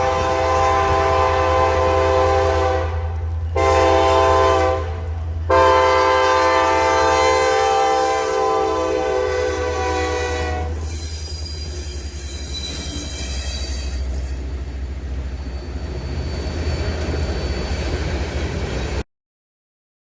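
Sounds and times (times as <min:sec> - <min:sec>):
locomotive air horn: 0:00.0 - 0:11.4
freight train rolling past: 0:00.0 - 0:19.0
faint high wheel squeal: 0:09.8 - 0:19.0.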